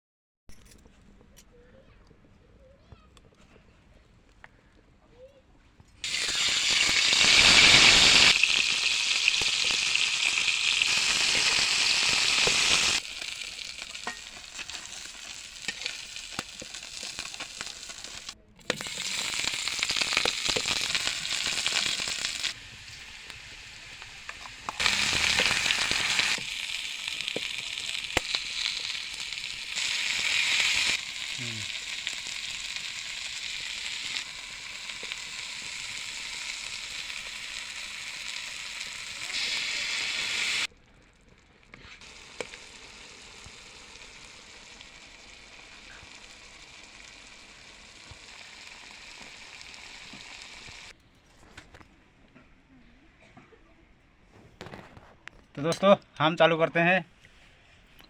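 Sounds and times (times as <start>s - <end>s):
fish frying in hot oil: 6.0s - 50.9s.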